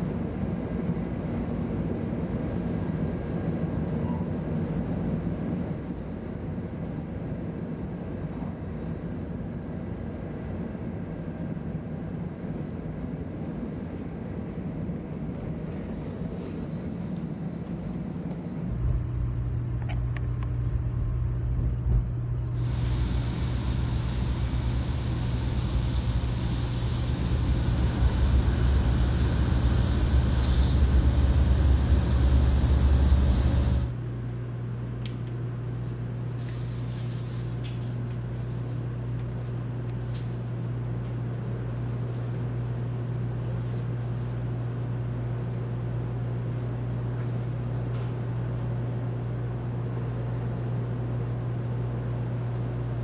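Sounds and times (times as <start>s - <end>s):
train carriage rumble: 12.4s - 34.1s
hiss: 22.6s - 33.9s.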